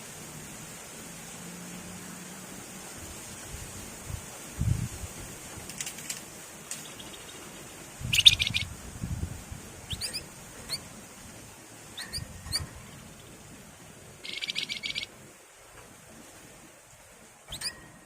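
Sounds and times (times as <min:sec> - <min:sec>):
bird buzzy trills: 0:06.7 - 0:08.8, 0:09.8 - 0:11.0, 0:11.8 - 0:13.5, 0:14.1 - 0:15.2, 0:17.5 - 0:18.0
bird whistle notes: 0:08.1 - 0:08.7, 0:09.9 - 0:10.8, 0:12.0 - 0:12.7, 0:14.2 - 0:15.1, 0:17.5 - 0:18.0.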